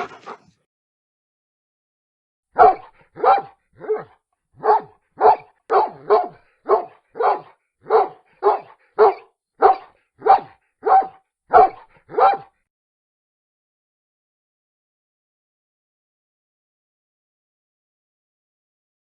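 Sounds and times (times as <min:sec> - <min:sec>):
dog barking: 0:00.0 - 0:00.6, 0:02.6 - 0:12.6.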